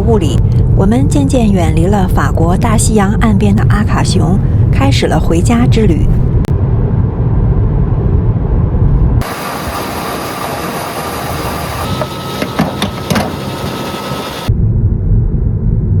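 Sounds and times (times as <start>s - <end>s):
car road rumble: 6.2s - 14.5s
even hiss: 9.2s - 14.5s.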